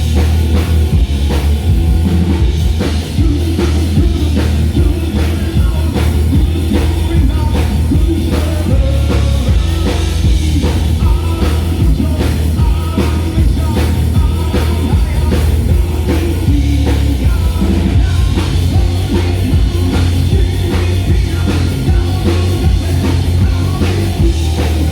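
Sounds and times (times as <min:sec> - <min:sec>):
live rock band playing: 0:00.0 - 0:24.9
pounding drum kit: 0:00.0 - 0:24.9
person singing: 0:02.8 - 0:24.9.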